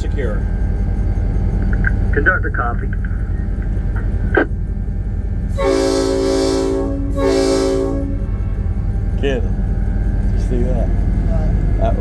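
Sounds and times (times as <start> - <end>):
steady low rumble: 0.0 - 12.0
locomotive air horn blasts: 5.5 - 8.8.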